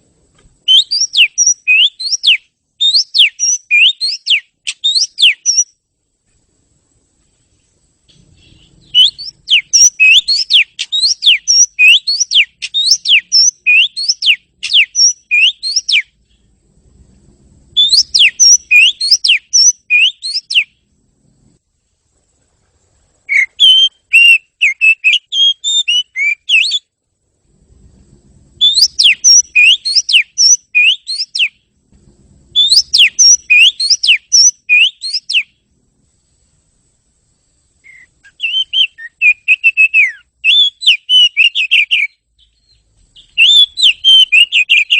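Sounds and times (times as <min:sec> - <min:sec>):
bird singing sweeping whistles: 0:00.6 - 0:05.8, 0:08.1 - 0:16.5, 0:17.7 - 0:20.8, 0:23.2 - 0:26.9, 0:28.6 - 0:31.7, 0:32.5 - 0:35.6, 0:37.8 - 0:44.9.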